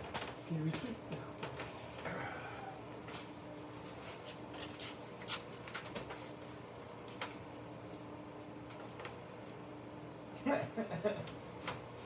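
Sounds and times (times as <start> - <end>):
faint steady hum: 0.1 - 4.7.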